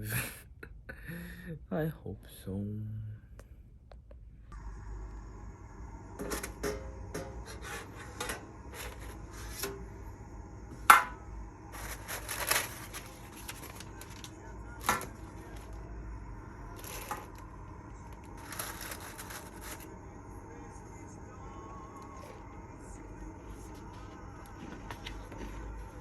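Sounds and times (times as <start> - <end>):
rustling: 11.7 - 15.7.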